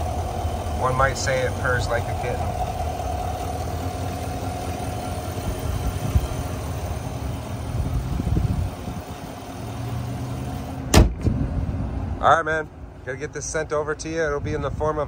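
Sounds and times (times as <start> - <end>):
pickup engine idling: 0.0 - 11.8.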